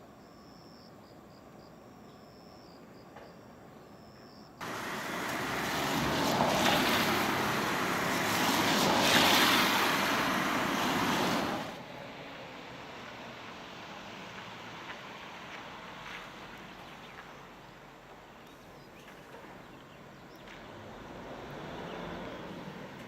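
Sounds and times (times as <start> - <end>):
faint insect chirping: 0.0 - 5.0
coach driving past: 4.6 - 11.9.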